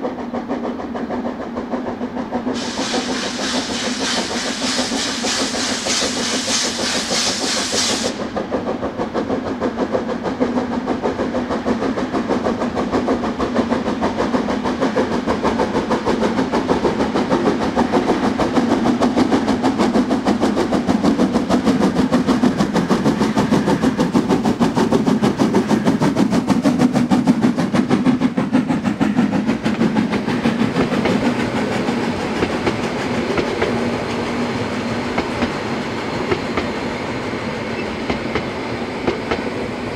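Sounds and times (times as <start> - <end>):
steam locomotive exhaust beats: 0.0 - 39.9
loud steam hiss: 2.5 - 8.4, 27.8 - 39.9.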